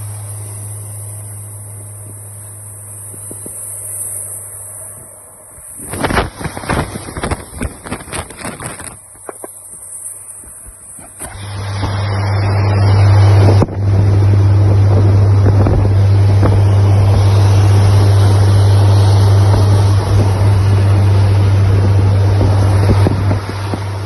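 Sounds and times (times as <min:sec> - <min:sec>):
car engine drone: 0:00.0 - 0:24.0
wind rushing over microphone: 0:00.0 - 0:24.0
crackly knocks and buffeting: 0:05.5 - 0:24.0.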